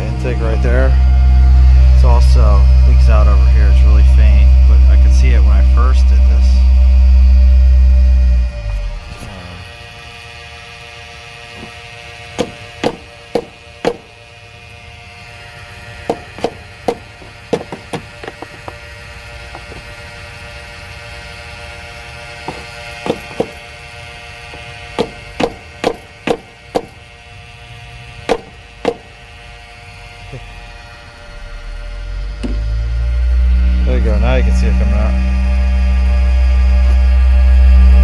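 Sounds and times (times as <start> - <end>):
steady hum: 0.0 - 38.0
hammer tapping on engine part: 12.4 - 14.0, 16.1 - 18.6, 25.0 - 27.0, 28.3 - 29.1.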